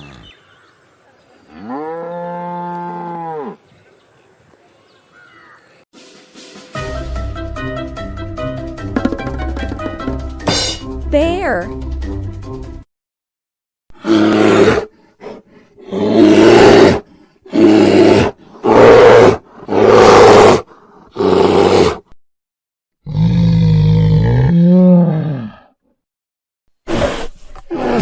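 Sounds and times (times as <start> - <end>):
bear roaring: 23.0 - 25.7.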